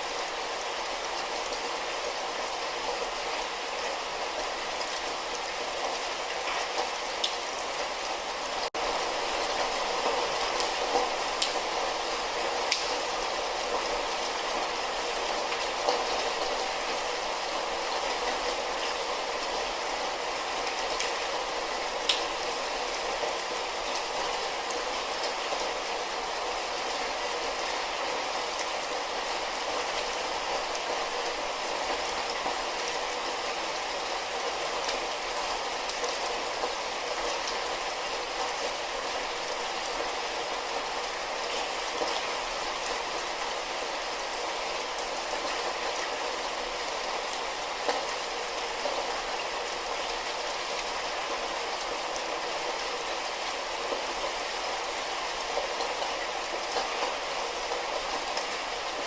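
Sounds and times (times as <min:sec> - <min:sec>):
light rain falling: 0:00.0 - 0:59.0
raindrop ticks: 0:10.6 - 0:11.6, 0:12.7 - 0:13.0, 0:22.1 - 0:22.5.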